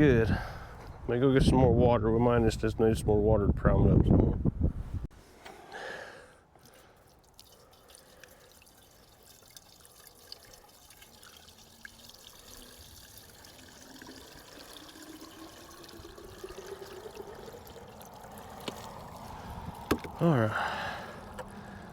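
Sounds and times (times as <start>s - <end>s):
water pouring into a container: 6.6s - 20.3s.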